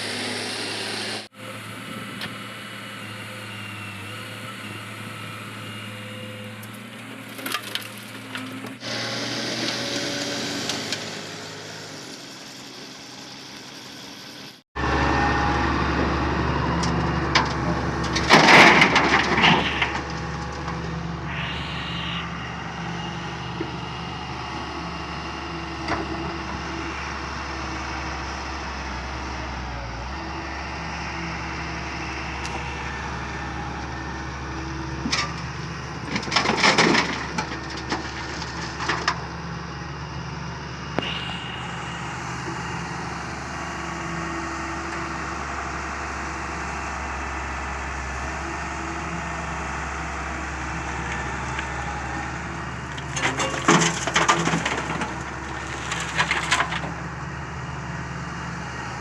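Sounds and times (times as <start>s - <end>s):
excavator diesel engine running: 0.0s - 7.4s, 8.0s - 59.0s
gravel clattering and crunching: 16.9s - 21.0s, 35.0s - 39.4s, 50.8s - 57.3s.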